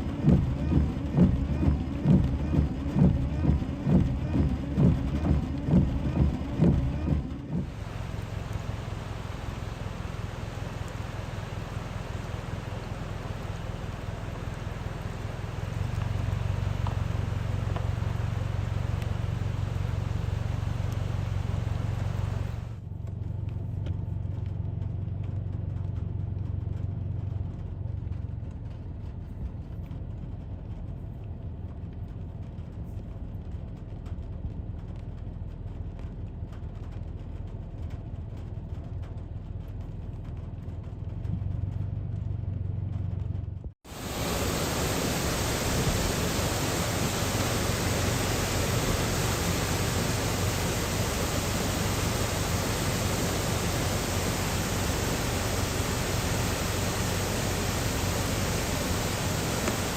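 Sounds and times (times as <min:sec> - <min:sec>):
car road and engine rumble: 0:00.0 - 0:59.9
loud even rushing noise: 0:43.9 - 0:59.9.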